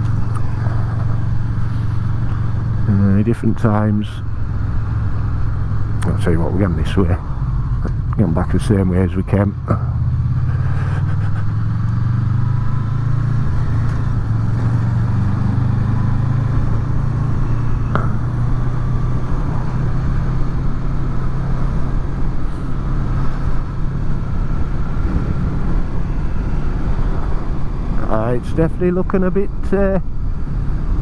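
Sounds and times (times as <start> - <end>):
motorcycle engine running: 0.0 - 31.0
wind noise on microphones: 16.5 - 28.1.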